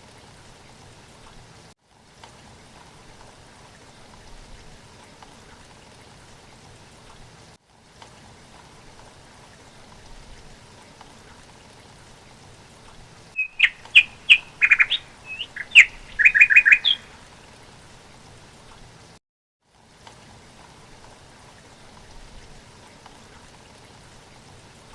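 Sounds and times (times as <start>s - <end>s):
faint steady hiss: 0.0s - 24.9s
songbird chirping and trilling: 13.4s - 17.3s.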